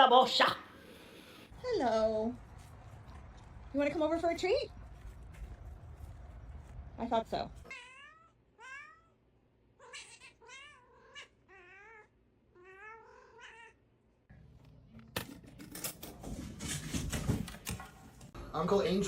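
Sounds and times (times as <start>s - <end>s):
cat meowing: 7.7s - 9.2s, 9.8s - 13.8s
clattering and knocking: 15.2s - 18.3s.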